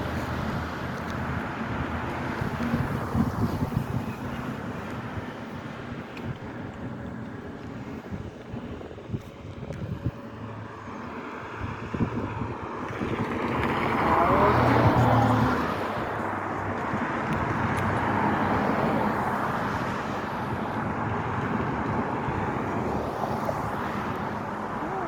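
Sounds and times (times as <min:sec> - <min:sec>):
vehicle passing by: 0:10.0 - 0:25.0.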